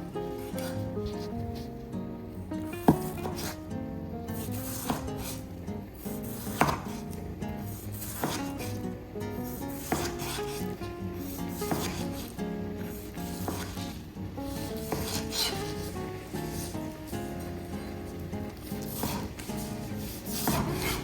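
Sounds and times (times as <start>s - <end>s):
knife chopping on wooden board: 2.8s - 3.6s, 4.4s - 5.4s, 6.2s - 8.8s, 9.5s - 16.9s, 18.5s - 21.0s.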